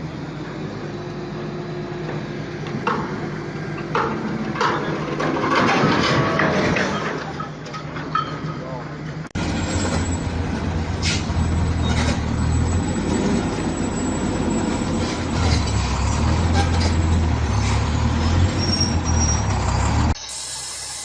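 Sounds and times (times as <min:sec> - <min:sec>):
truck engine rumbling: 0:00.0 - 0:20.5.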